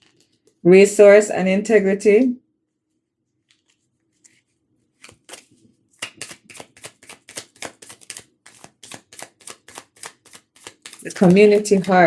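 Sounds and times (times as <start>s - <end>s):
cards being shuffled: 0.0s - 0.6s, 3.4s - 12.0s.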